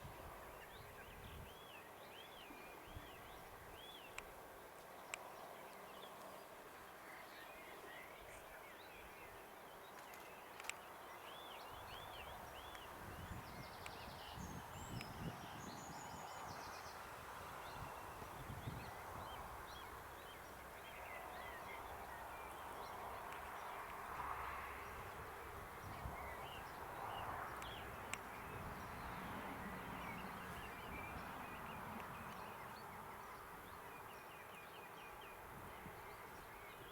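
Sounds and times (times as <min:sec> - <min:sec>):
small birds chirping: 0:04.9 - 0:24.2.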